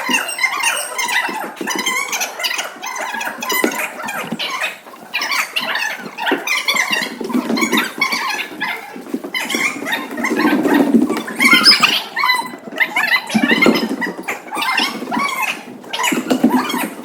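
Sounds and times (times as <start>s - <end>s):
children chattering: 0.0s - 5.7s.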